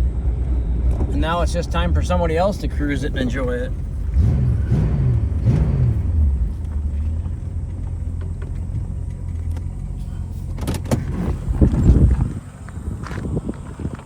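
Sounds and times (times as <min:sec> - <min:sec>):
car engine rumbling: 0:00.0 - 0:14.0.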